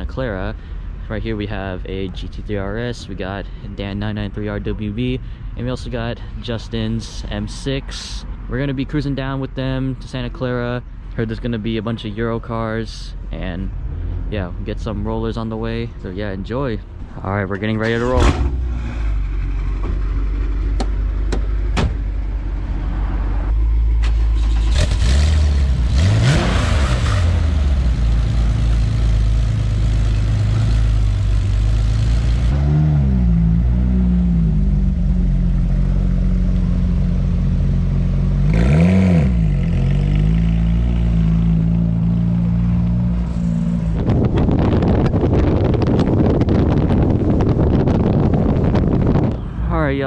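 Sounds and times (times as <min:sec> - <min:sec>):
car engine revving: 0:17.8 - 0:49.3.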